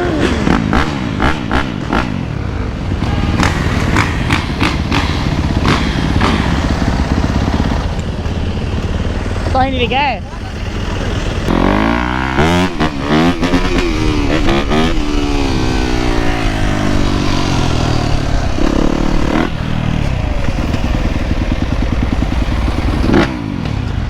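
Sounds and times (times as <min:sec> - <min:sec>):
dirt bike engines revving: 0:00.0 - 0:24.0.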